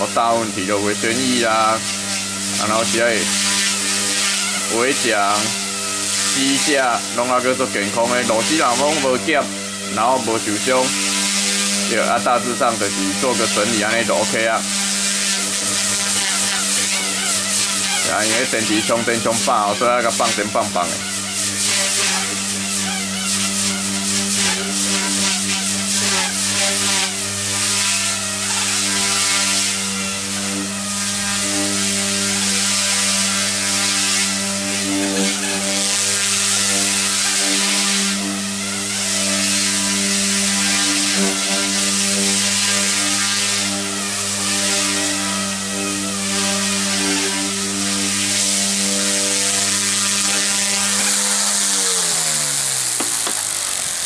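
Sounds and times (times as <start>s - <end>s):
rc helicopter rotor hum: 0.0s - 54.0s.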